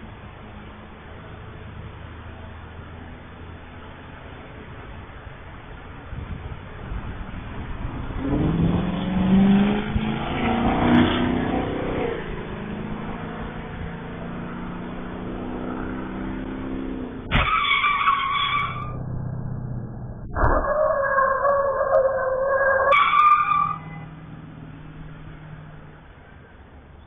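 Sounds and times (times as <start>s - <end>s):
car engine or tyres wavering: 0.0s - 27.0s.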